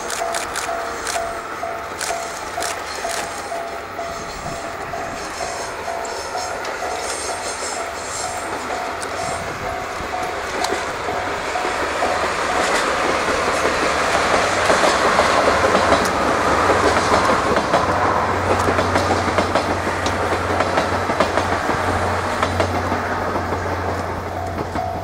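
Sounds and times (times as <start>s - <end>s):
train wheels clattering over rail joints: 0.0s - 25.0s.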